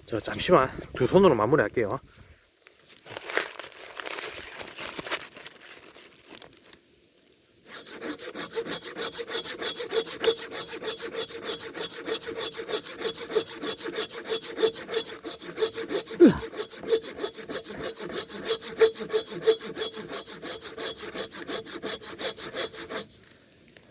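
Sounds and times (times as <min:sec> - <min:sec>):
hand saw cutting log: 0:07.7 - 0:23.2.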